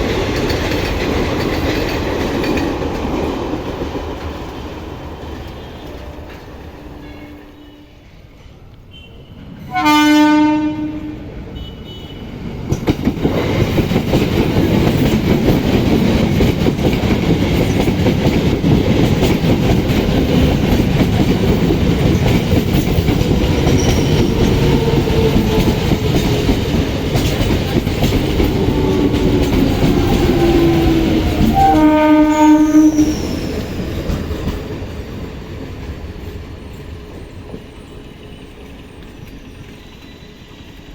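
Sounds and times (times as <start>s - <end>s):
train wheels clattering over rails: 0.0s - 6.7s, 12.4s - 40.9s
train horn blast: 5.5s - 8.1s, 8.9s - 12.3s, 28.5s - 33.4s.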